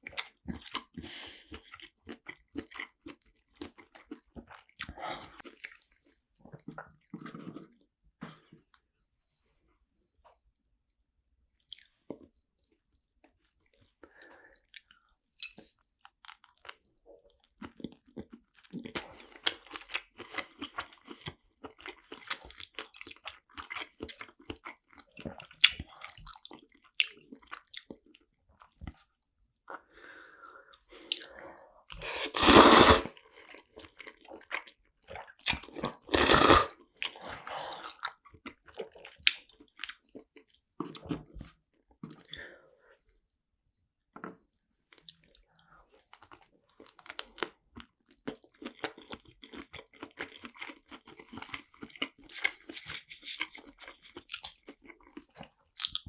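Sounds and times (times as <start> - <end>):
wet chewing with clicks: 11.6 - 13.9, 14.6 - 29.1, 44.1 - 56.0.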